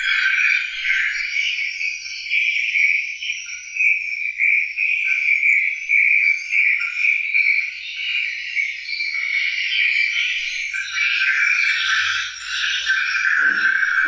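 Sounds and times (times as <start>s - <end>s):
chorus of high-pitched animal calls: 10.7s - 14.0s.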